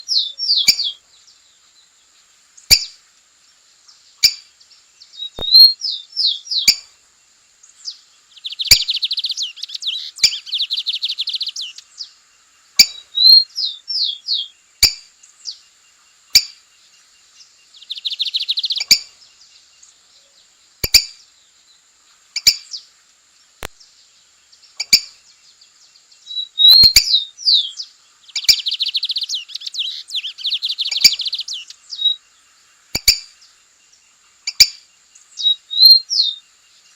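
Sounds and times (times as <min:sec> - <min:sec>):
bird singing with trill: 0:00.0 - 0:36.9
sharp clicks: 0:05.4 - 0:05.7, 0:20.8 - 0:21.1, 0:23.6 - 0:23.8, 0:33.0 - 0:33.2.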